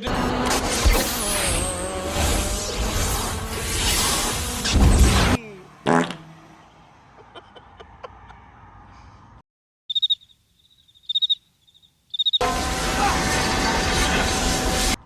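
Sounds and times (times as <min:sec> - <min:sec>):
cricket chirps: 0:09.9 - 0:12.4
loud steady rushing noise: 0:12.4 - 0:15.0.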